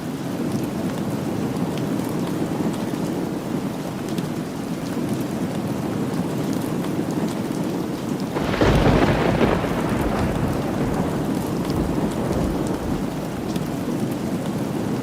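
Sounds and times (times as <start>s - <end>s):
steady rain: 0.0s - 15.0s
thunder clap rumbling: 8.4s - 14.8s.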